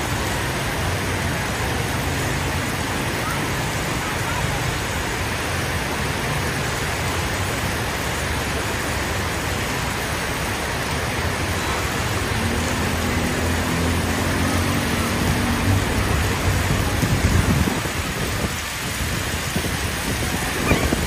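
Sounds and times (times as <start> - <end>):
heavy rain: 0.0 - 21.0
road traffic: 0.0 - 21.0
engine hum: 9.9 - 21.0.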